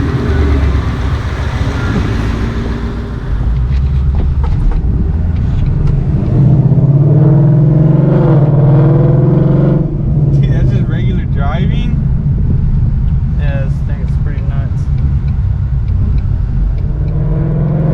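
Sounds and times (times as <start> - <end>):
car engine revving: 0.0 - 17.9.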